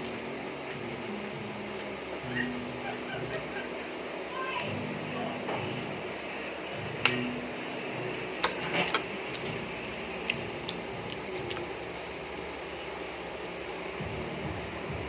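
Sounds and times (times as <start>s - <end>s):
room noise: 0.0s - 15.0s.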